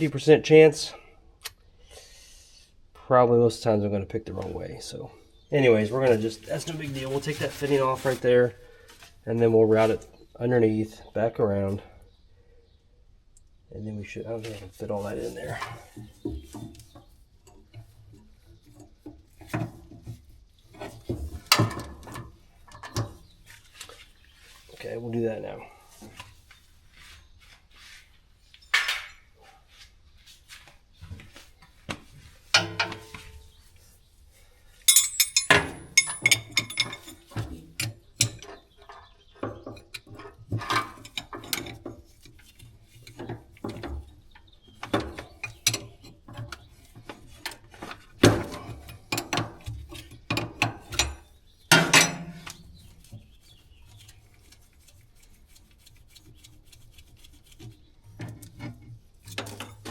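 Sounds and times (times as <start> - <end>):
metal hand tools clinking: 34.9 - 37.3.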